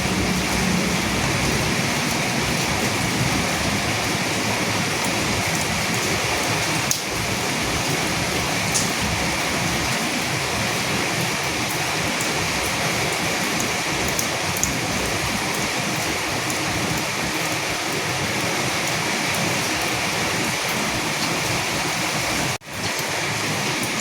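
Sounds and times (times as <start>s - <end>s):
rain hissing: 0.0s - 24.0s.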